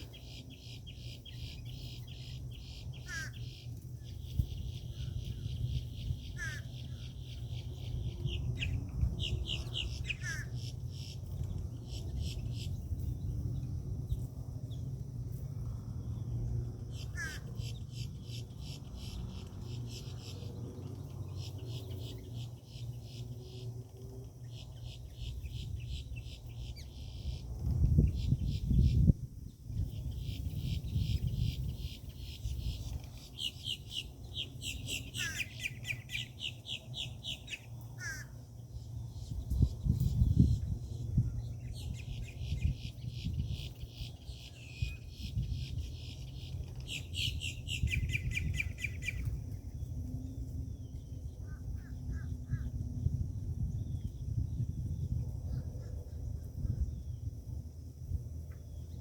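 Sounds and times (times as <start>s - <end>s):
birds chirping: 29.8s - 50.0s.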